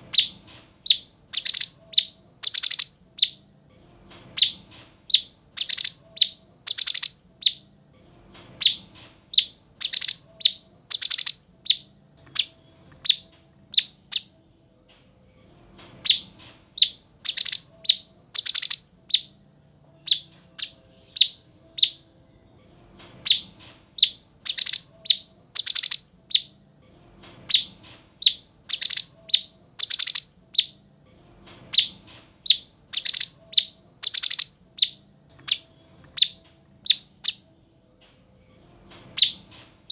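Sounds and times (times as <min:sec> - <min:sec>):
bulbul chattering song: 0:00.0 - 0:03.4, 0:04.4 - 0:07.6, 0:09.4 - 0:14.3, 0:16.8 - 0:19.3, 0:20.0 - 0:22.0, 0:23.3 - 0:26.5, 0:27.5 - 0:30.8, 0:31.8 - 0:37.4.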